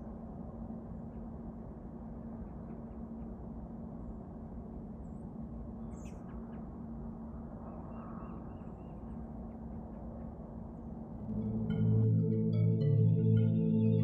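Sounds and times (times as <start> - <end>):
constant hum: 0.0 - 14.0
low background rumble: 0.0 - 14.0
faint bird chirps: 5.0 - 6.9, 7.6 - 10.4.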